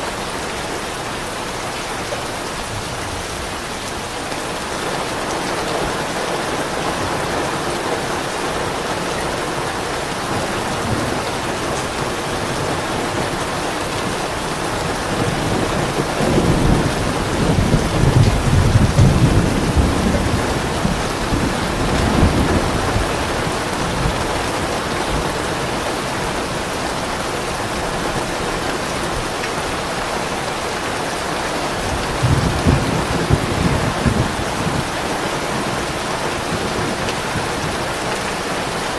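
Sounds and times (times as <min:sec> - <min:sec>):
heavy rain: 0:00.0 - 0:38.9
rolling thunder: 0:14.7 - 0:25.6, 0:31.8 - 0:37.9.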